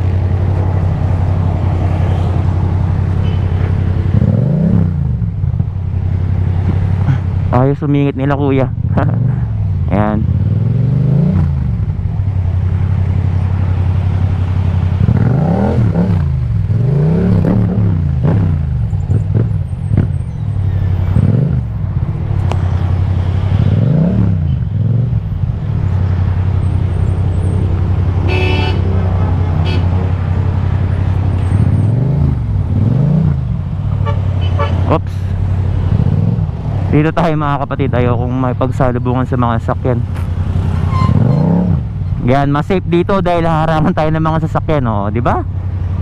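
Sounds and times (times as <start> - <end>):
vehicle horn: 3.2 - 3.6, 28.2 - 29.0, 29.6 - 30.0, 34.0 - 35.0, 40.9 - 41.5
motorcycle engine accelerating: 8.6 - 34.0.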